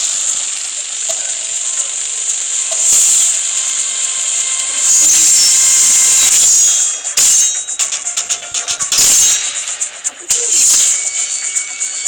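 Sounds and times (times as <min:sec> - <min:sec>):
spinning top whirring: 0:00.0 - 0:12.0.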